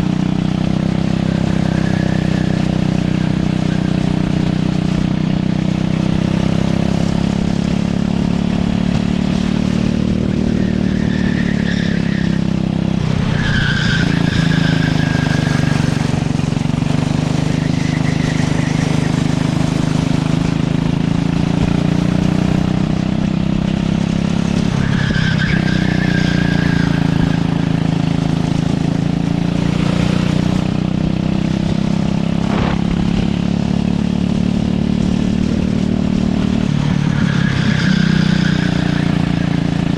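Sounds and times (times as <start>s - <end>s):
go-kart engine running hard: 0.0s - 39.9s
tyre squeals: 0.7s - 4.8s, 10.0s - 16.2s, 16.8s - 20.4s, 24.4s - 28.8s, 36.4s - 39.9s.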